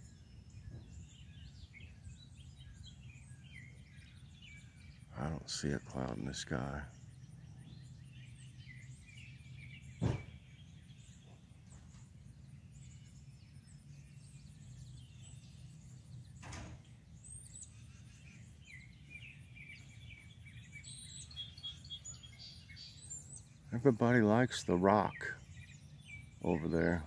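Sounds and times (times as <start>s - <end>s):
songbirds chirping and singing: 0.0s - 27.0s
sharp knock: 10.0s - 10.3s.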